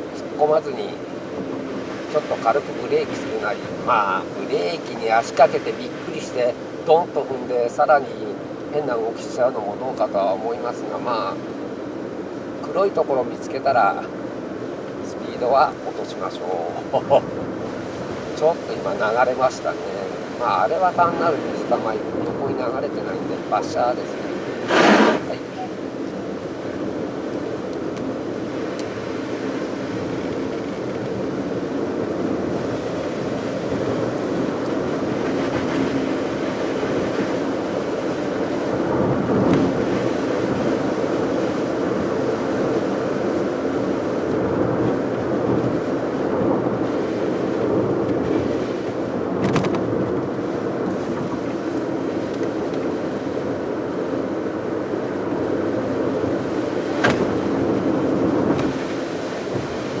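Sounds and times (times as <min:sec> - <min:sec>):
tyres on wet road: 0:24.1 - 0:26.8, 0:56.6 - 0:57.4.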